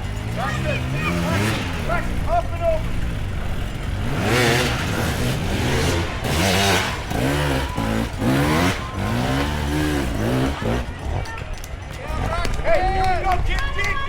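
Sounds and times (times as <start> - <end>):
dirt bike engine revving: 0.0 - 11.2.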